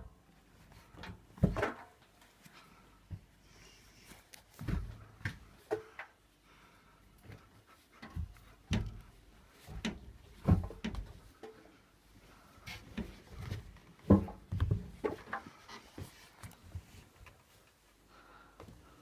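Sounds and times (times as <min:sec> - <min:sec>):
knocks and clunks of handling: 0:00.7 - 0:02.3, 0:04.5 - 0:06.2, 0:07.2 - 0:11.8, 0:12.6 - 0:17.4.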